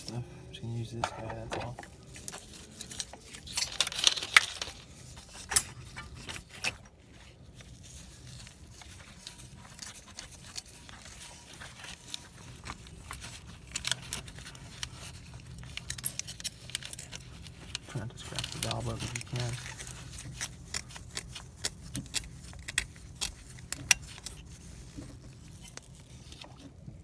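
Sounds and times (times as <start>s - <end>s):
hand tool scraping carbon deposits: 16.2s - 25.9s.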